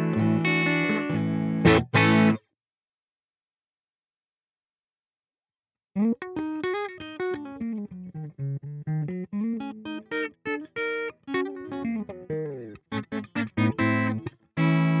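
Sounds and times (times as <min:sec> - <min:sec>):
distorted electric guitar: 0:00.0 - 0:02.4, 0:10.1 - 0:15.0.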